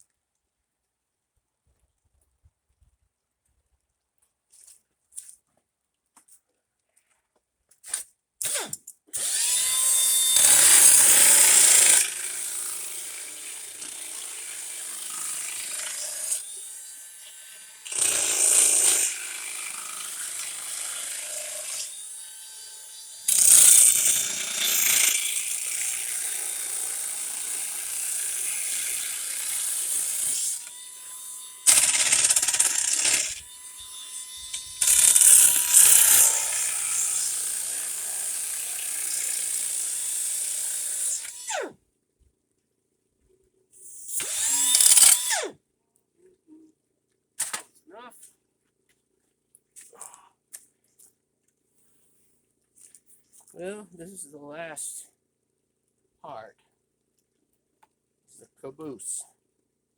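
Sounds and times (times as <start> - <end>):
electric drill running: 8.5 - 16.5, 17.8 - 22.0, 22.6 - 41.7, 44.0 - 45.5.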